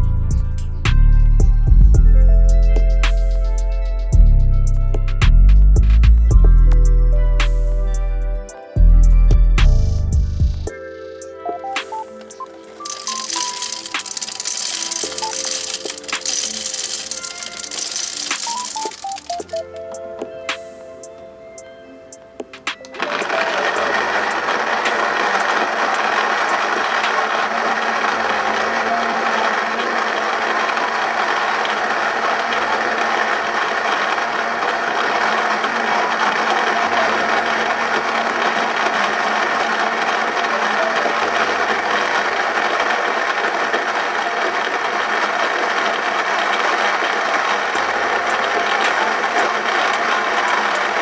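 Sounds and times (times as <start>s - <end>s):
coffee grinder grinding beans: 12.9s - 19.4s.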